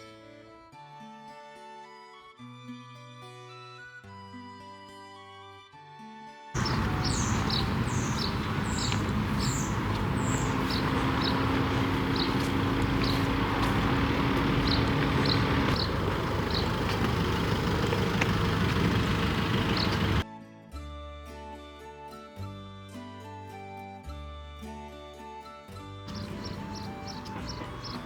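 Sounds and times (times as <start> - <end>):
small bird chirping: 6.6 - 20.2, 26.1 - 28.0
traffic noise: 6.6 - 20.2, 26.1 - 28.0.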